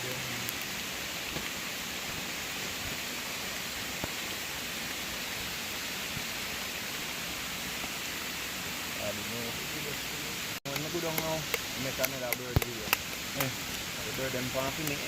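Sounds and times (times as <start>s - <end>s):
rain hiss: 0.0s - 15.0s
waterfall rushing: 0.0s - 15.0s
sharp tick: 10.7s - 13.5s.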